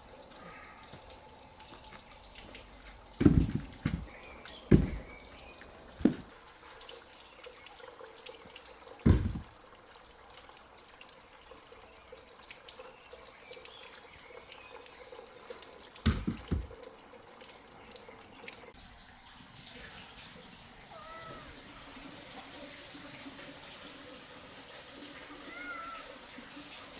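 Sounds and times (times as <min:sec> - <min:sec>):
heavy dull thuds: 0:03.2 - 0:06.3, 0:09.1 - 0:09.6, 0:16.1 - 0:16.8
cat meowing: 0:20.9 - 0:21.7, 0:25.4 - 0:26.2.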